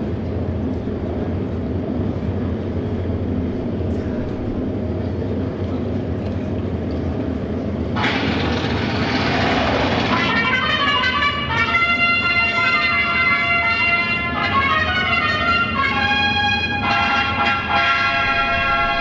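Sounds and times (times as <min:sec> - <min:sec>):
motorcycle engines rumbling: 0:00.0 - 0:14.5
loud rushing noise: 0:07.9 - 0:11.6
brass fanfare: 0:08.0 - 0:19.0.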